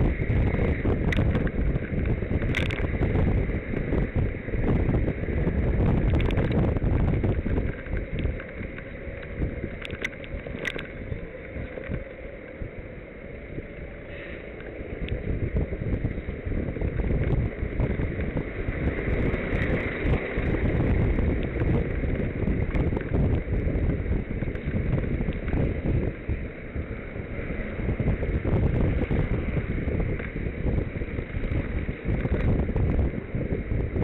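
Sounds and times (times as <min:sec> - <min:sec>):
bicycle clicks and rattles: 0:00.0 - 0:13.0, 0:13.6 - 0:34.0
wind buffeting microphone: 0:00.0 - 0:34.0.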